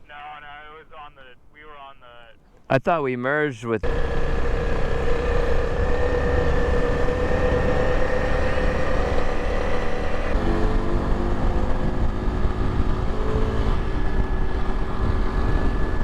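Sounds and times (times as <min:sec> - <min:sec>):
motorcycle engine running: 0:03.8 - 0:16.0
wind rumble on microphone: 0:03.8 - 0:16.0.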